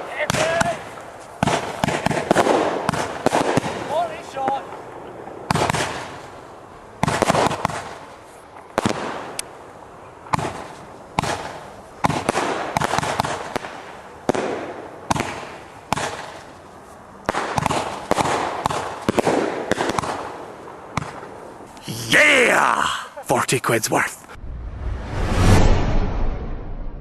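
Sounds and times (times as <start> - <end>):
firework bangs: 0.0 - 6.3, 7.0 - 9.4, 10.3 - 16.5, 17.3 - 21.4.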